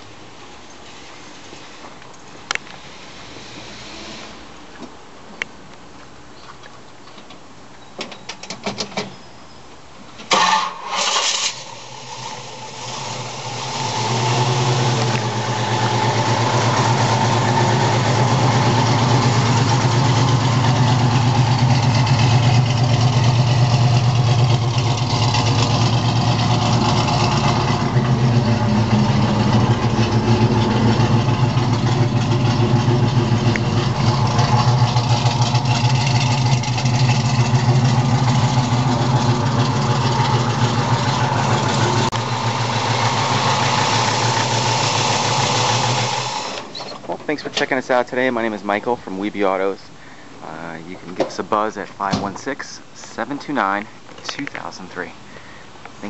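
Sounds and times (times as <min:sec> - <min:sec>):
car engine starting and idling: 0:10.2 - 0:49.0.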